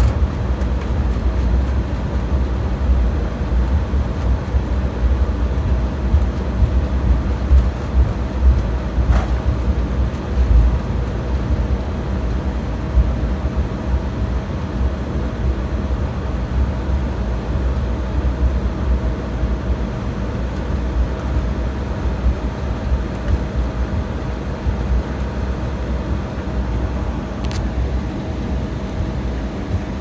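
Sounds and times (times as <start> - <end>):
airliner cabin rumble and hum: 0.0 - 30.0
small click: 27.4 - 27.7.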